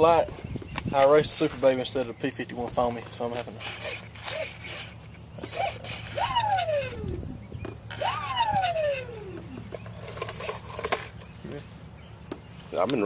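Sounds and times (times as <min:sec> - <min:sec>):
electric motor spinning up: 0:03.6 - 0:10.6.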